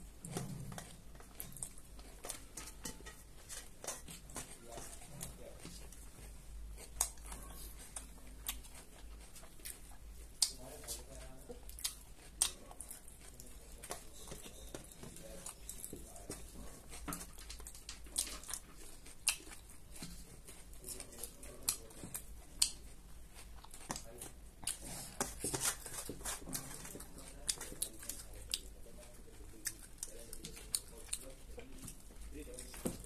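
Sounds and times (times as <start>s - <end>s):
crunchy chewing: 0.0s - 33.0s.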